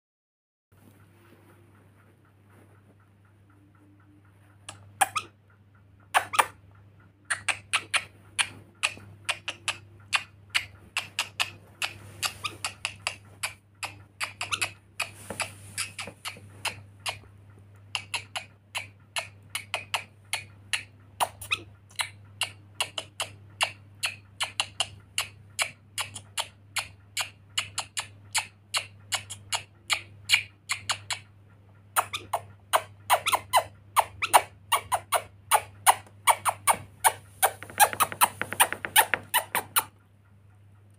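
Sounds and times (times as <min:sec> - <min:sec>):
parrot squeaky chirps: 0:04.7 - 0:05.4, 0:06.1 - 0:06.6, 0:07.3 - 0:15.1, 0:21.2 - 0:22.2, 0:32.0 - 0:39.9.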